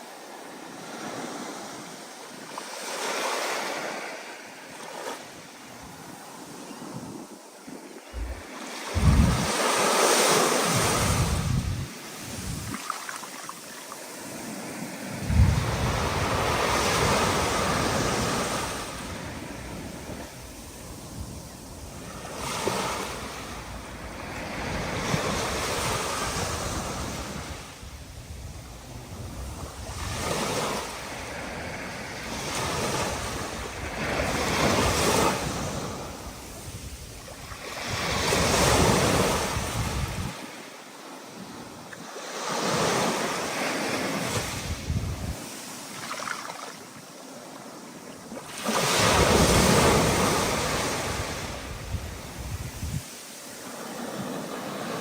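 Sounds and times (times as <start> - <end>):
ocean waves breaking: 0.0 - 27.8
wind gusting over microphone: 8.1 - 13.0, 15.0 - 40.5, 44.2 - 45.5, 48.7 - 53.1.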